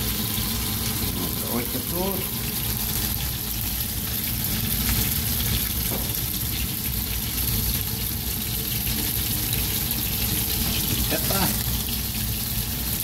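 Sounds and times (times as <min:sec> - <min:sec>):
fish sizzling in frying pan: 0:00.0 - 0:13.0.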